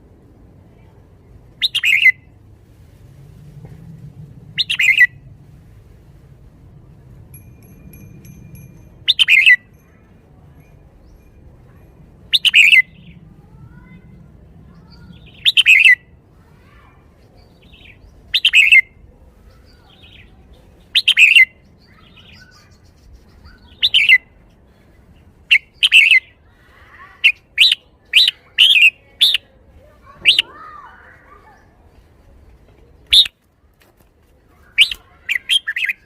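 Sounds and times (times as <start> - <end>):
bulbul singing: 7.3 - 11.5, 12.3 - 13.2, 14.8 - 16.1, 19.8 - 24.3.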